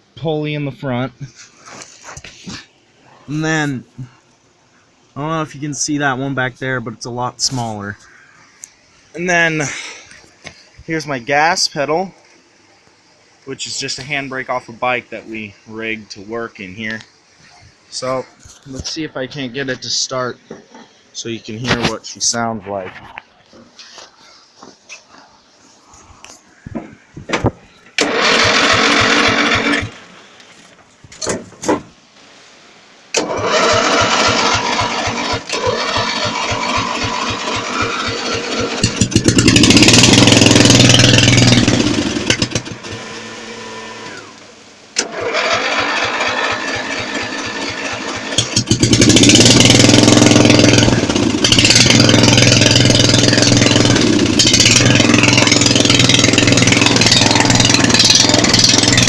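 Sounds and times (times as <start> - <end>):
small engine cranking: 28.0 - 30.0, 33.2 - 44.4, 45.0 - 59.0
small engine running unevenly: 28.0 - 30.0, 33.2 - 44.4, 45.0 - 59.0.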